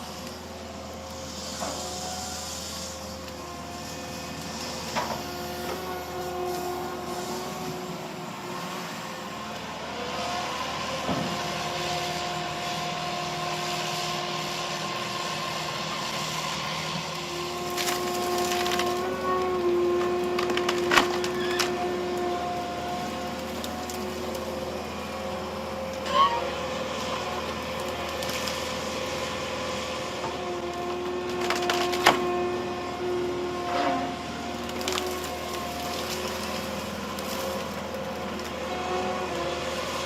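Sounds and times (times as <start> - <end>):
wood cracking and splintering: 17.4 - 22.2, 22.9 - 25.1, 27.3 - 29.0, 30.7 - 32.3, 34.6 - 38.9.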